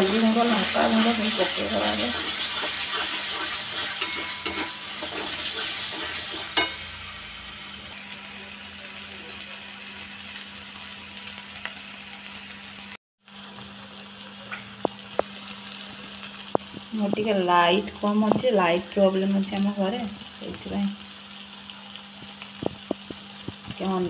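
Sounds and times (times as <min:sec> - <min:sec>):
onion masala sizzling in oil: 0:00.0 - 0:24.0.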